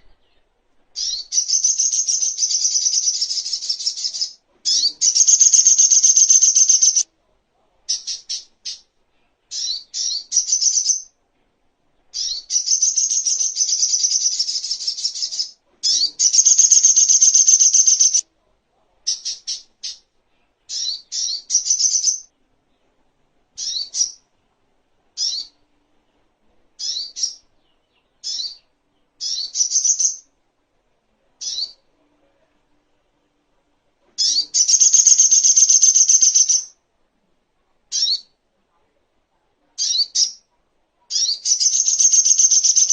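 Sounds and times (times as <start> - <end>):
bird high chirps: 0.0 - 7.0, 7.9 - 8.9, 9.5 - 11.1, 12.1 - 18.2, 20.7 - 22.3, 23.6 - 24.2, 25.2 - 25.6, 26.8 - 30.3, 31.4 - 31.8, 34.2 - 36.8, 37.9 - 38.4, 39.8 - 40.5, 41.1 - 42.9
bird rapid chattering notes: 4.7 - 7.0, 15.9 - 18.2, 34.2 - 36.7, 41.5 - 42.9.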